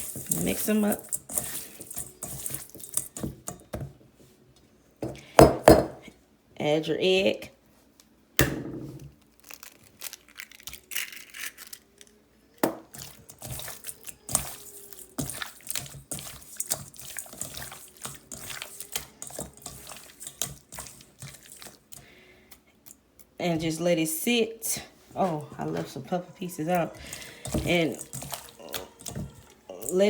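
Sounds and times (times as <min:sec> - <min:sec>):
wet squelching of chicken mixing: 0:00.0 - 0:03.2, 0:12.9 - 0:23.3, 0:25.0 - 0:30.0.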